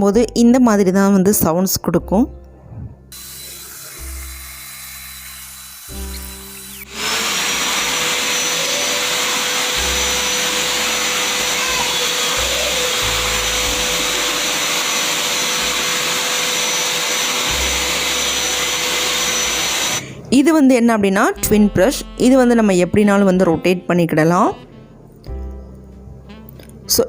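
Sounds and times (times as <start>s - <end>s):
vacuum cleaner running: 3.2s - 20.1s.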